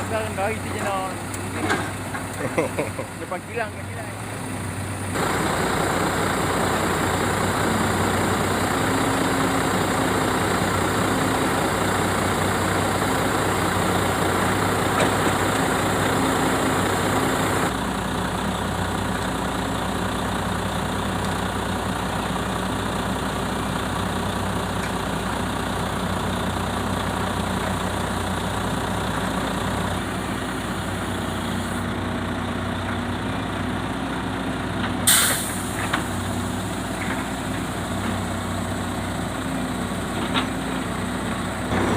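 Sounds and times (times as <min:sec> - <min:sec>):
diesel engine idling: 0:00.0 - 0:41.9
air hiss burst: 0:35.1 - 0:35.8.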